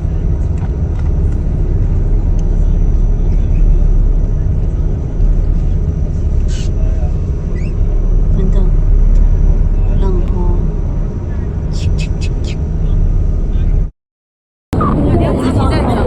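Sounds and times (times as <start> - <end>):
ferry low rumble: 0.0 - 13.9, 14.7 - 16.0.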